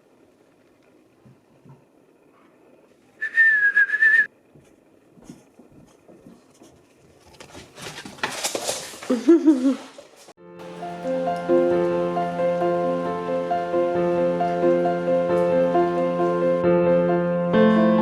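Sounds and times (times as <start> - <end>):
person whistling: 3.2 - 4.3
rustling noise: 4.5 - 11.6.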